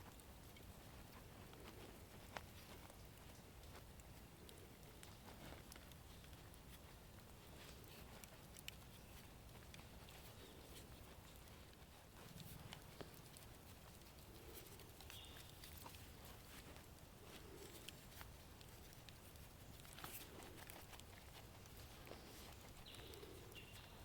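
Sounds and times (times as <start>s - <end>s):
campfire coals crackling: 0.0s - 24.0s.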